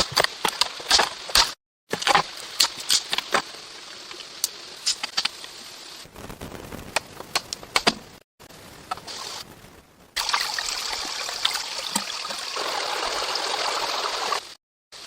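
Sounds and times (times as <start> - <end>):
steady hiss: 2.2 - 12.5.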